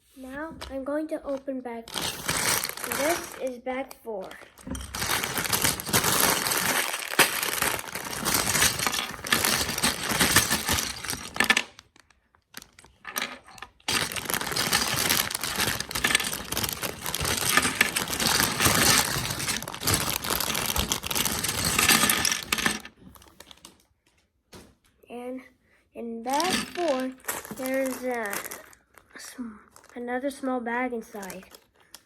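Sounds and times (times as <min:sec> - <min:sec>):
plastic bricks clicking and rattling: 0:01.9 - 0:03.5, 0:04.2 - 0:23.8, 0:26.3 - 0:28.8
plastic bag crinkling and tearing: 0:01.9 - 0:03.6, 0:04.2 - 0:23.8, 0:26.3 - 0:30.0, 0:31.2 - 0:31.8.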